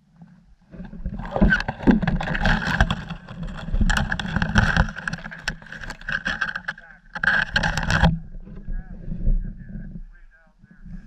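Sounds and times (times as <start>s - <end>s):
sharp knocks and rattles: 0.8s - 8.2s
wind buffeting microphone: 7.8s - 11.0s.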